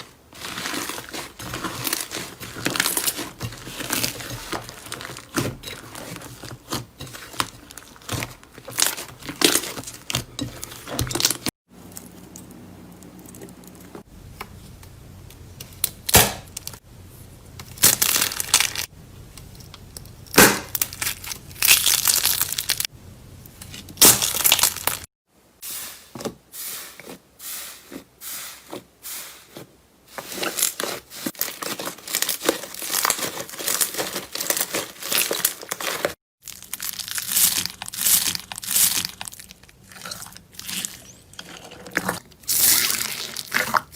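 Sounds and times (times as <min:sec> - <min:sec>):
slime crackling and tearing: 0:00.0 - 0:10.2, 0:17.8 - 0:18.9, 0:20.3 - 0:22.9, 0:24.0 - 0:25.1, 0:30.4 - 0:43.9.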